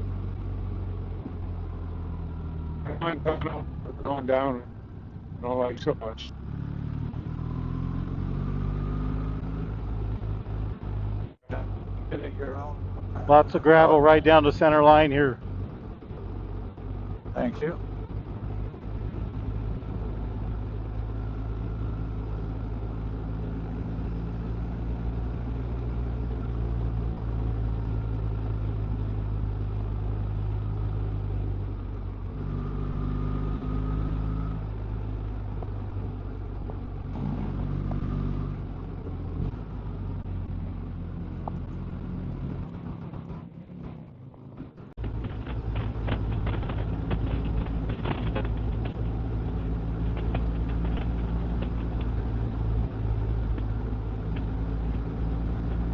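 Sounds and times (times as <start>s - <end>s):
motorcycle engine running: 33.3s - 55.9s.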